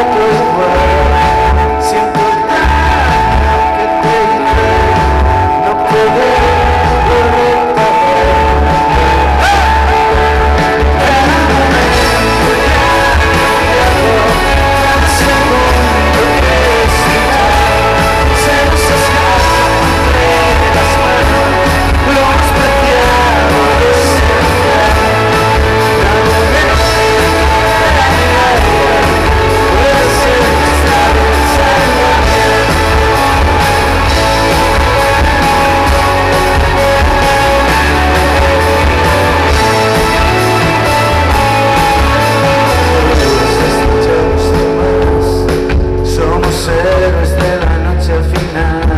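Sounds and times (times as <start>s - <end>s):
live indie rock band: 0.0s - 48.9s.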